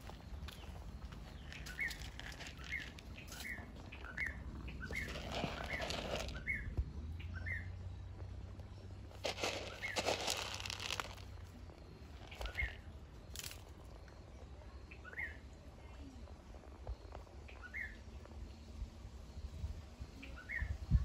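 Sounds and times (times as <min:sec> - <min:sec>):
rustling crinkling noise: 0:00.0 - 0:06.5, 0:09.0 - 0:13.9
bird chirping: 0:00.5 - 0:07.9, 0:12.2 - 0:13.0.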